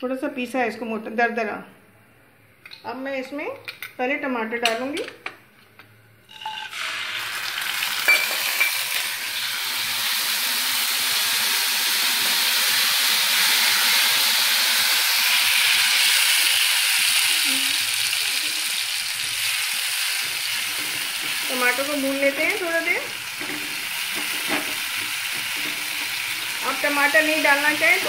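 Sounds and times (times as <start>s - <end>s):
tomato sizzling in hot oil: 6.3s - 28.0s
spatula stirring: 20.1s - 21.9s, 23.2s - 26.7s.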